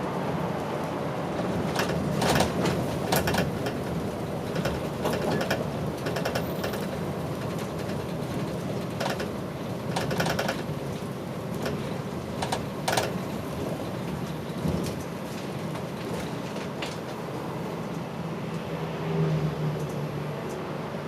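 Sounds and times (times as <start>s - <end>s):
bus engine and road rumble: 0.0s - 21.0s
bus fittings rattling: 1.4s - 18.1s.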